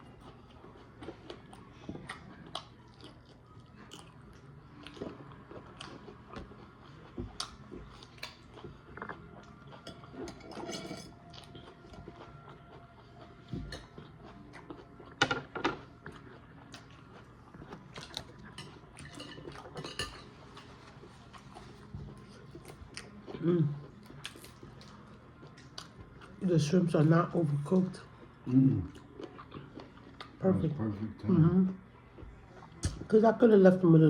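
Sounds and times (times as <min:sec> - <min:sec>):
eating sounds: 0:00.0 - 0:10.7, 0:27.6 - 0:33.1
cutlery and dishes clinking: 0:09.8 - 0:11.2, 0:15.2 - 0:15.9, 0:18.0 - 0:20.7.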